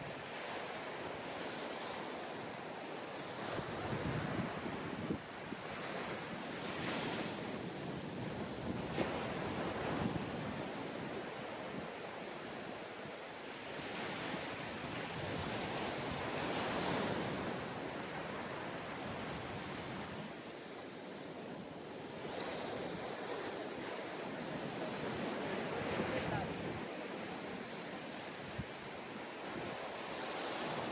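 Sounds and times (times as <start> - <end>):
ocean waves breaking on beach: 0.0 - 30.9
wind rumble on microphone: 3.4 - 12.0, 13.9 - 20.3, 22.2 - 30.9.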